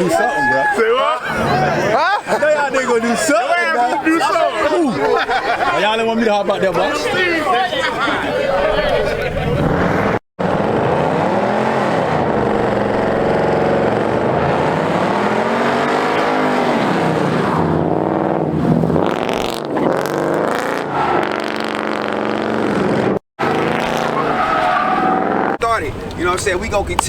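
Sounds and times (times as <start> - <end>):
car engine revving: 9.1 - 27.0.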